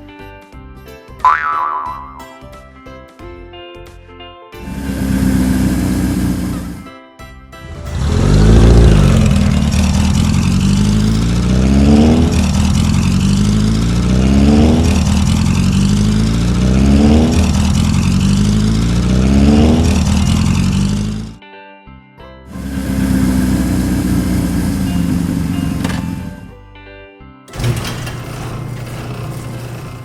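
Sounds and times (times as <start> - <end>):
cartoon engine revving: 4.6 - 6.9, 7.6 - 21.4, 22.5 - 26.5.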